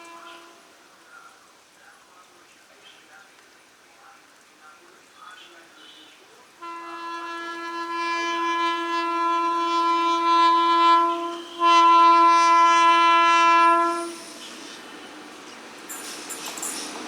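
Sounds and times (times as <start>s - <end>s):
train horn blasts: 0.0s - 0.8s, 6.6s - 17.0s
train rushing noise: 8.2s - 17.0s.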